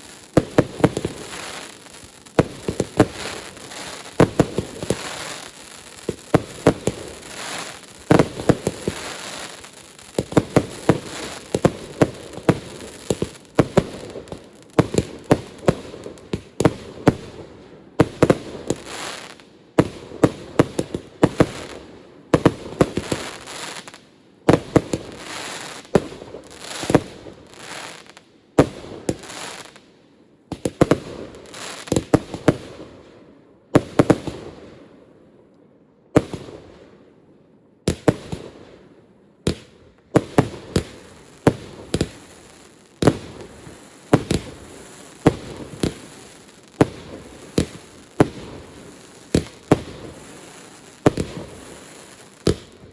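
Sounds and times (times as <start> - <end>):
fireworks bangs: 0.0 - 17.3, 18.0 - 29.8, 39.5 - 52.9.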